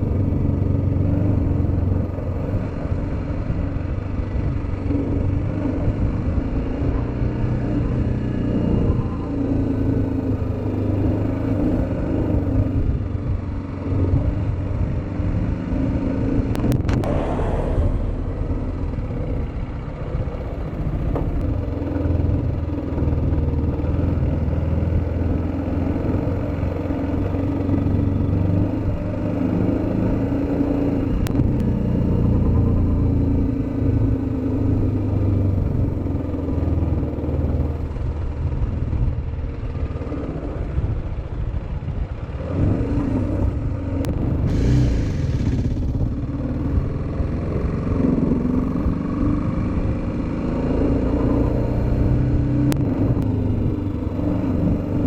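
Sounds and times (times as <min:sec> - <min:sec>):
motorcycle engine running: 0:00.0 - 0:55.0
brief hiss: 0:44.4 - 0:45.8.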